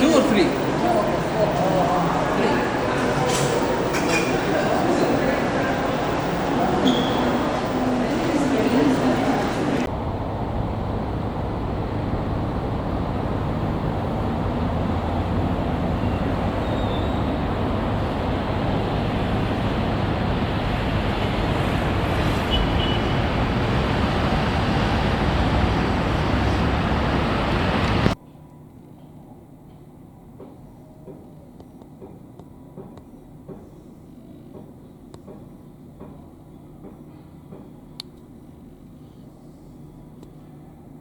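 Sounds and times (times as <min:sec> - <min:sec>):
coach engine and road noise: 0:00.0 - 0:28.2.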